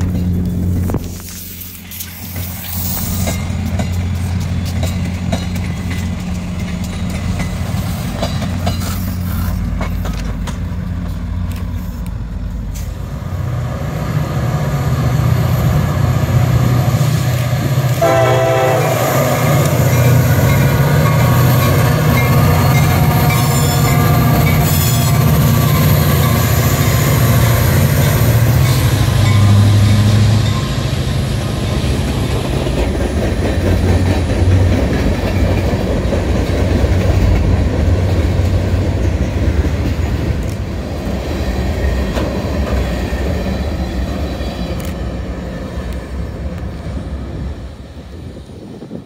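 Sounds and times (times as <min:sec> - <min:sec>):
diesel locomotive rumble: 0:00.0 - 0:49.0
passenger train rolling: 0:00.0 - 0:49.0
train horn blast: 0:17.9 - 0:20.3.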